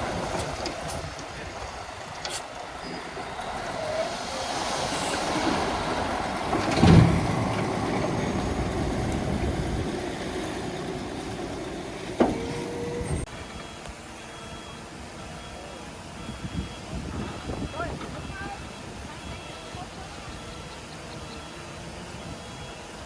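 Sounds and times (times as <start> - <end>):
tracks clattering: 0.0 - 13.7
bulldozer engine under load: 0.0 - 23.0
heavy clunk: 6.2 - 10.6, 12.1 - 13.3.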